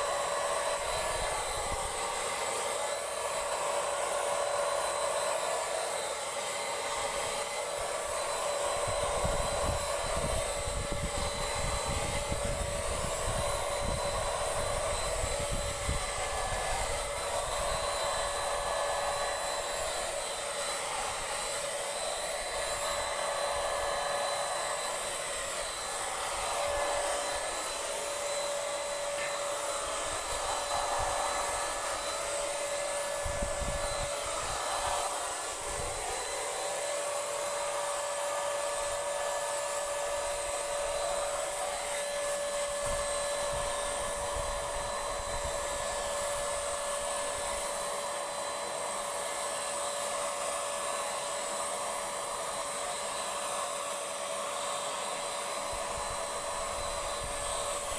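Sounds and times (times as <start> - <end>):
paint sprayer motor whine: 0.0 - 57.9
hiss of air: 8.3 - 36.2, 38.8 - 47.8.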